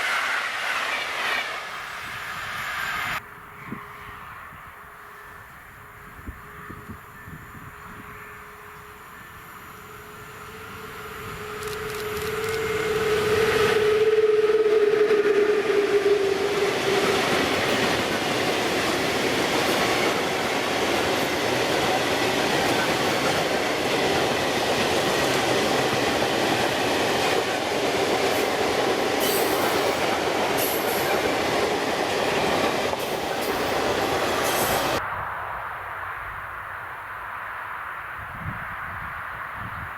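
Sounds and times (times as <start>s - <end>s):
freight train rolling on rails: 0.0s - 35.0s
whining tone: 8.7s - 20.2s.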